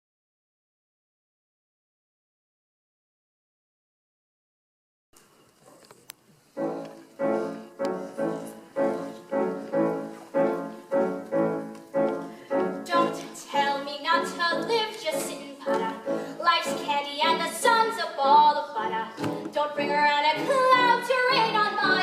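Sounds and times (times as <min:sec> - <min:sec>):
piano chords: 0:06.5 - 0:22.0
woman singing: 0:12.8 - 0:22.0.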